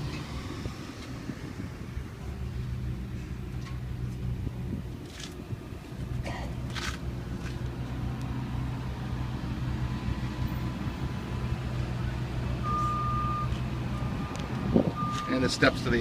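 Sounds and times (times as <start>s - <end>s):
vehicle engine idling: 0.0s - 16.0s
reversing alarm beeping: 12.6s - 14.4s, 15.0s - 15.4s.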